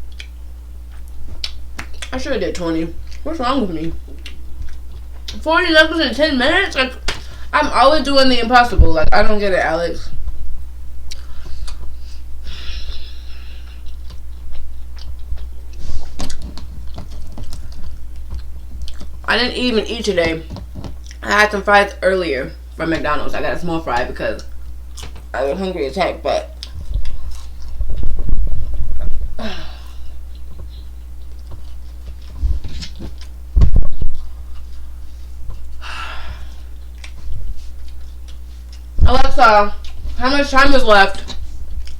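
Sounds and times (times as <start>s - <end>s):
steady low hum: 0.0s - 41.9s
chewing clicks: 0.1s - 2.1s
person eating with mouth noises: 11.1s - 19.2s.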